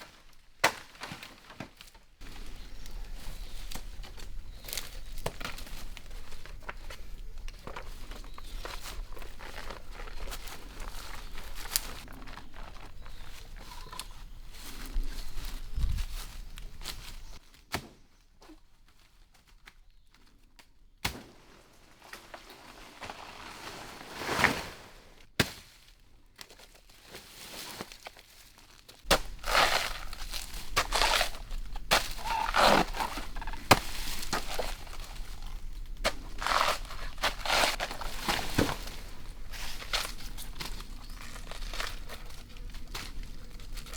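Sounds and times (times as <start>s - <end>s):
bamboo stems rustling and crackling: 0.0s - 17.7s, 21.9s - 43.9s
sharp knocks on bamboo stalks: 17.7s - 18.0s, 25.4s - 25.8s, 29.1s - 35.2s.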